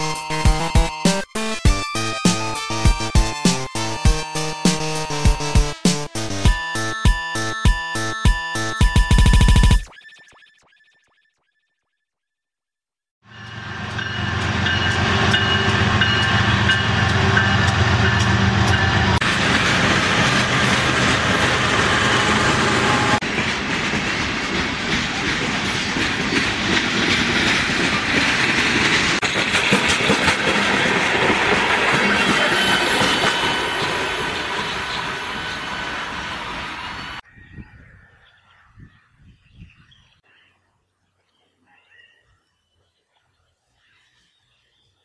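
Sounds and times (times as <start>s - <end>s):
train wheels clattering on track: 13.4s - 36.5s.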